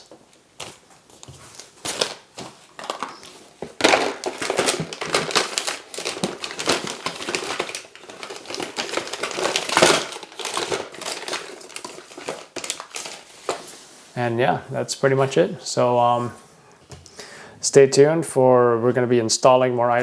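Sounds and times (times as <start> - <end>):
plastic packaging crinkling: 0.0 - 13.8.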